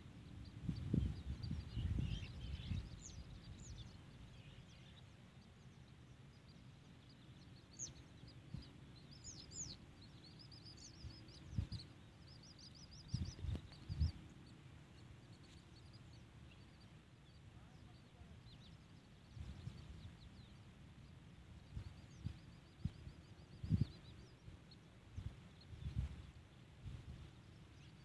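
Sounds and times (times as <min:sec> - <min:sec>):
small birds chirping: 0:00.0 - 0:28.0
dull low thumps: 0:12.9 - 0:14.2.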